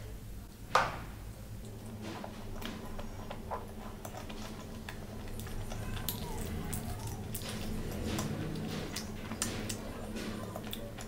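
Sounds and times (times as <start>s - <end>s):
chewing clicks and smacks: 2.6s - 11.0s.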